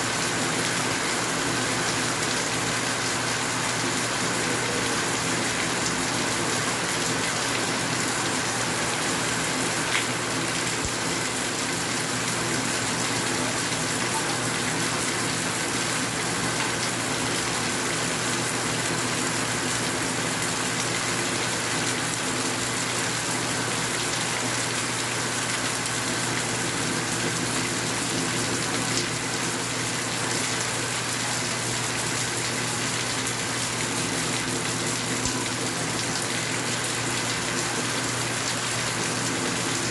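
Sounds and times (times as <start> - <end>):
steady rain hiss: 0.0 - 39.9
sharp raindrop ticks: 9.9 - 10.2.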